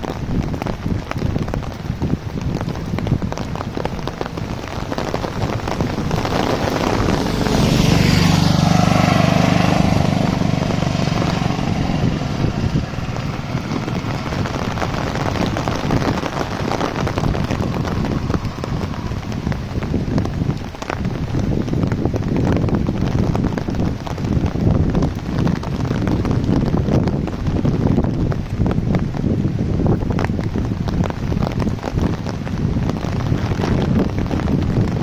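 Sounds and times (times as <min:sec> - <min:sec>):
heavy rain pattering: 0:00.0 - 0:35.0
vehicle driving past: 0:06.6 - 0:15.0.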